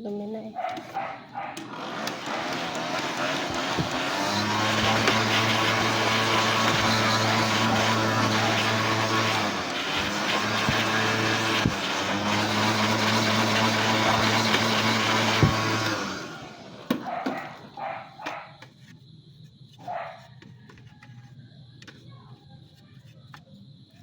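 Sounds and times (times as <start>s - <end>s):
electric cleaning tool blowing air: 1.5s - 17.8s.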